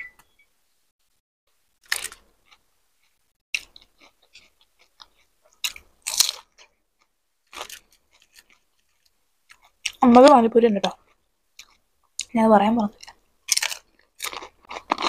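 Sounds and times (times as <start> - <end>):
loud crunching bites: 4.8 - 6.7, 13.0 - 15.0.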